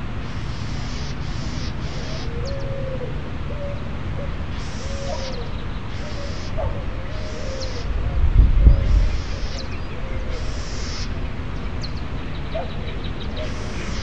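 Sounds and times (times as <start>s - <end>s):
low rumbling hiss: 0.0s - 14.0s.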